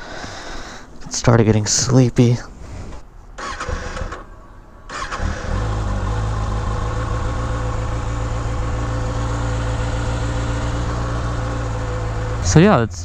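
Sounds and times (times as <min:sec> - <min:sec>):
motorcycle engine idling: 0:05.3 - 0:12.7.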